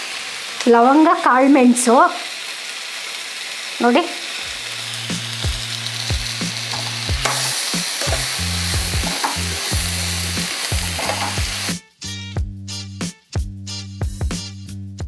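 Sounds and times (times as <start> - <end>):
vegetables sizzling in hot oil: 0.0 - 11.8
steel spoon scraping a pan: 6.7 - 11.7.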